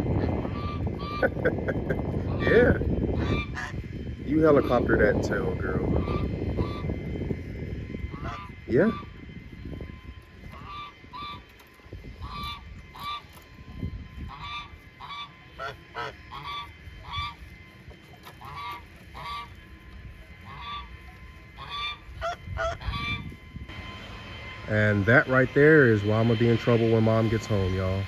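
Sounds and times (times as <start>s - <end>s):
wavering fowl calls: 0.0s - 27.4s
farm fowl honking: 0.1s - 1.5s, 2.2s - 3.8s, 5.9s - 7.0s, 8.1s - 9.2s, 10.5s - 11.5s, 12.2s - 13.6s, 14.2s - 23.4s.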